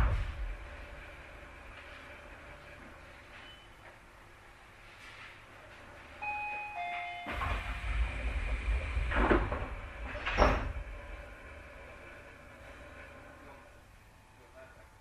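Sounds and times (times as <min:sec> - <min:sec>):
sliding train doors with air rush: 0:00.0 - 0:14.2
two-note door chime: 0:06.2 - 0:07.8
doors thudding shut: 0:07.2 - 0:11.4.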